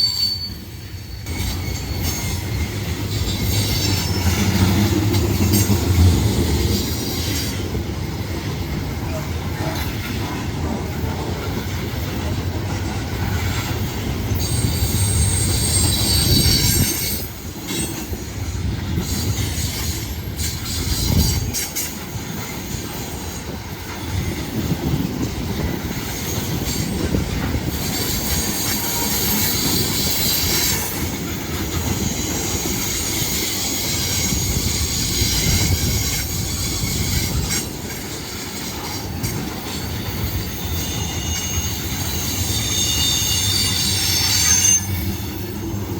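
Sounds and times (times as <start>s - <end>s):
freight train rumbling past: 0.0s - 45.9s
train wheels squealing: 0.0s - 45.9s.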